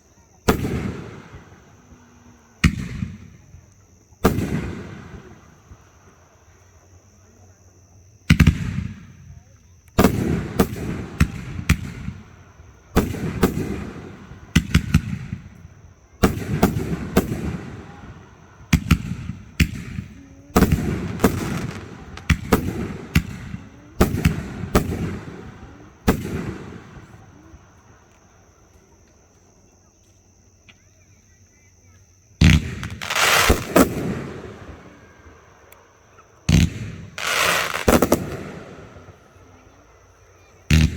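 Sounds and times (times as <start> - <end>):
fireworks bangs with echo: 0.4 - 1.8, 2.6 - 3.6, 4.2 - 5.8, 8.3 - 27.9, 32.4 - 40.0, 40.6 - 40.9.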